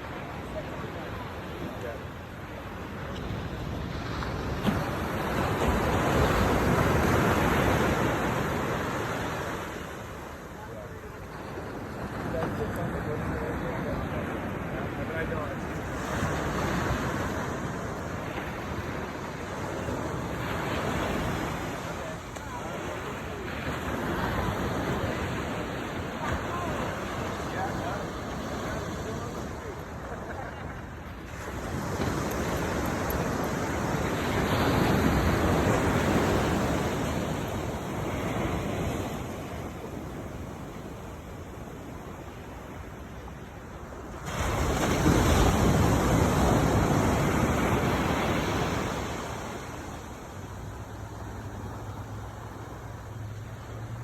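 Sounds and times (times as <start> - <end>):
rushing water: 0.0 - 54.0
rushing wind: 0.0 - 54.0
surf washing: 0.0 - 54.0.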